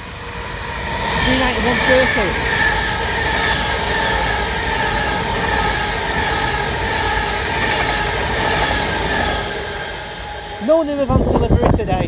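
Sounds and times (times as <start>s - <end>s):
train wheels rushing on rail: 0.0s - 12.0s
train whine: 0.0s - 12.0s.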